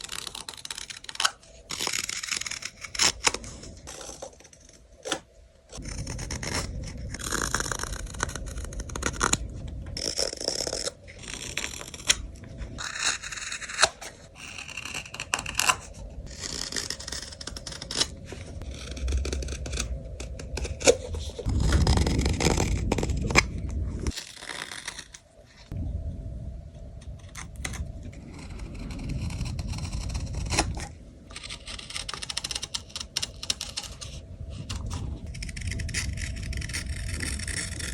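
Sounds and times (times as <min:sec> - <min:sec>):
carving tools scraping wood: 0:00.0 - 0:09.4, 0:12.8 - 0:23.4, 0:28.4 - 0:37.9.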